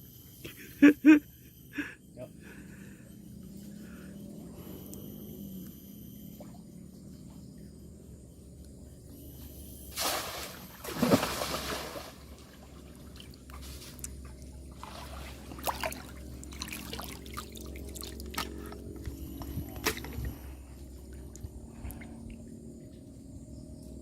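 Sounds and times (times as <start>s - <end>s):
river water trickling: 9.7s - 22.7s
water splashes: 9.9s - 18.8s.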